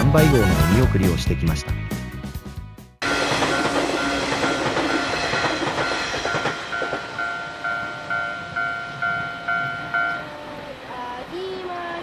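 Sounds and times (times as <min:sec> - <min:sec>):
wheels clattering over rails: 0:03.0 - 0:09.9
level crossing warning bell: 0:03.0 - 0:10.5
electric train passing: 0:03.0 - 0:12.0.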